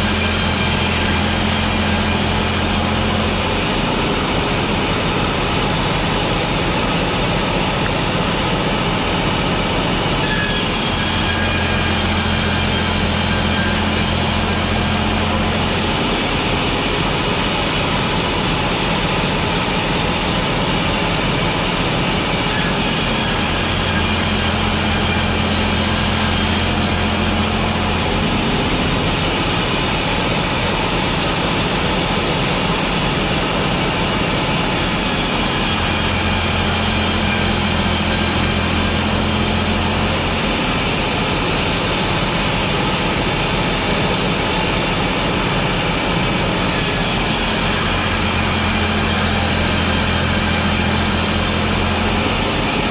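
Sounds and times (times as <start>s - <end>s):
sawing machinery running: 0.0s - 52.9s
deep machine hum: 10.9s - 52.9s.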